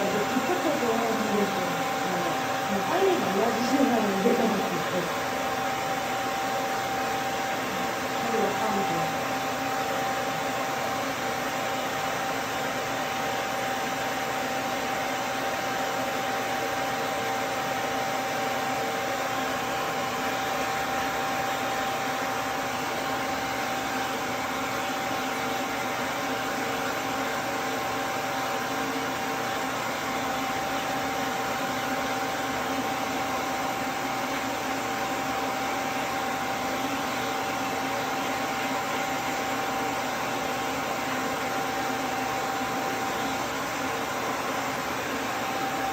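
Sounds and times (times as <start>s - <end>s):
pet dryer blowing with whine: 0.0s - 45.9s.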